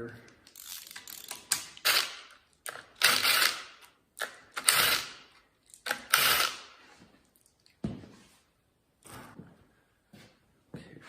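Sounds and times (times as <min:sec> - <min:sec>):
ratchet wrench clicking: 0:00.4 - 0:02.2, 0:03.0 - 0:03.7.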